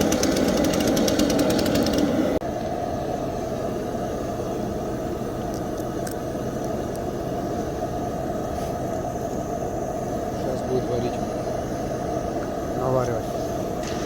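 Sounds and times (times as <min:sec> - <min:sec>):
hammering power tool: 0:00.0 - 0:02.4
machinery engine rumble: 0:00.0 - 0:14.0.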